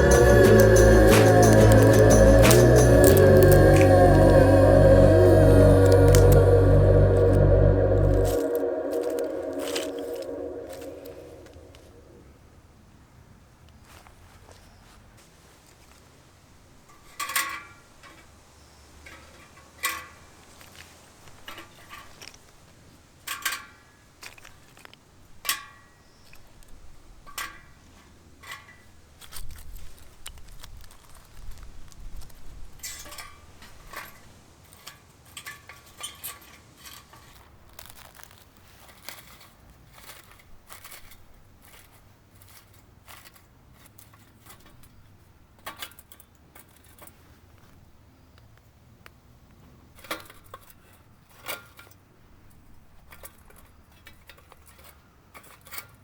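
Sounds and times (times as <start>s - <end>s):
wood fire crackling: 0.0s - 11.9s.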